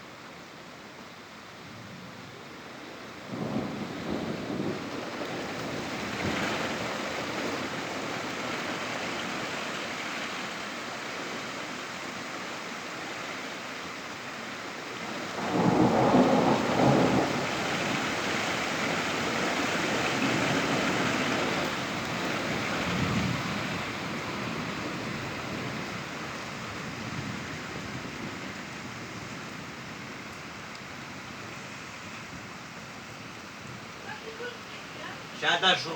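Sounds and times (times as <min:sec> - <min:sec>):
heavy rain: 0:00.0 - 0:35.9
thunder rumbling: 0:03.3 - 0:07.8, 0:15.1 - 0:30.3.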